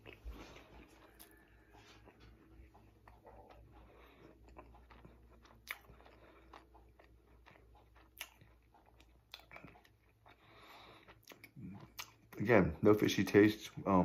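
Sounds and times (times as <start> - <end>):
faint chewing: 0.0 - 14.0
wet mouth clicks: 2.7 - 10.2.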